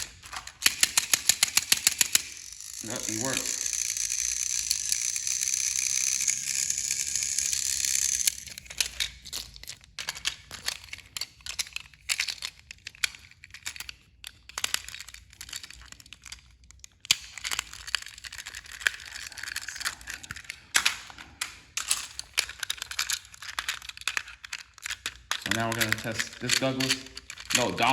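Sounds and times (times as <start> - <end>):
toy train motor whining: 0.0 - 9.6, 17.2 - 27.9
plastic toys clicking and rustling: 0.0 - 27.9.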